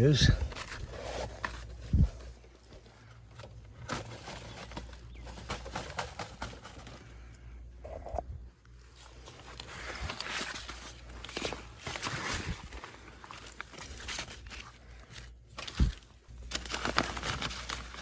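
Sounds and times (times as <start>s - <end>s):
hands handling wiring and gear: 0.0s - 18.0s.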